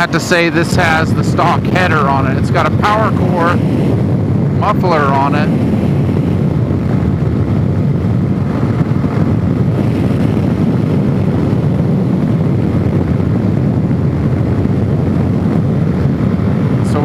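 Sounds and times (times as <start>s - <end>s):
motorcycle engine running: 0.0s - 17.0s
wind noise on microphone: 0.0s - 17.0s.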